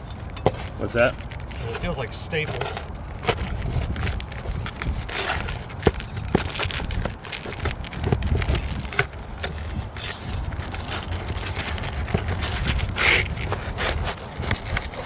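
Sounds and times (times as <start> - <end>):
rasping scrape: 0.0 - 15.0
roof shingles clicking and scraping: 0.0 - 15.0.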